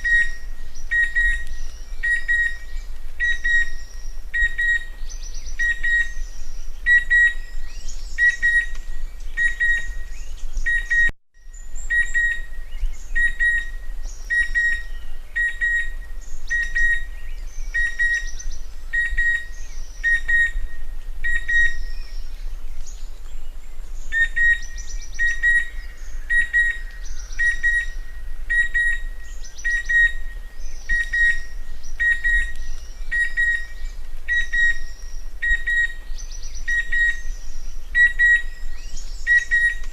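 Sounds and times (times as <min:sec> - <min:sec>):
cuckoo whistled call: 0:06.8 - 0:08.8, 0:09.4 - 0:17.1, 0:17.7 - 0:22.1, 0:24.1 - 0:39.9.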